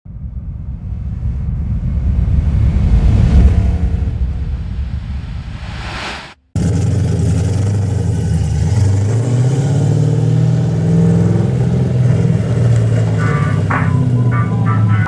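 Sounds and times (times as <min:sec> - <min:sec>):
car engine running: 0:11.4 - 0:15.0.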